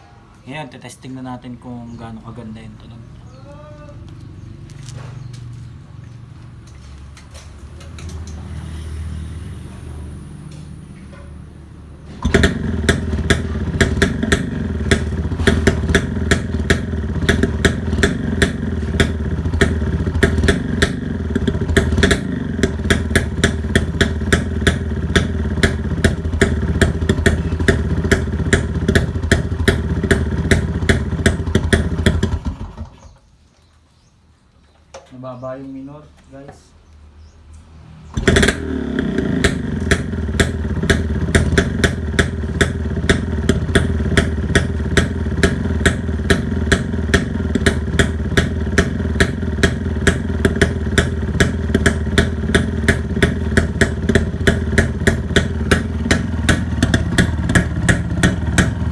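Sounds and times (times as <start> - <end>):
two-stroke motorcycle engine: 10.0 - 33.2, 38.0 - 58.9
sharp exhaust pops: 11.9 - 33.3, 38.1 - 58.9.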